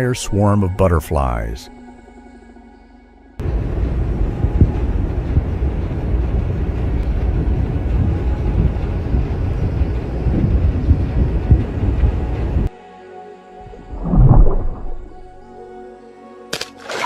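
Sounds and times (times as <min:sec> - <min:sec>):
uneven low rumbling: 0:03.4 - 0:12.7, 0:13.6 - 0:15.7.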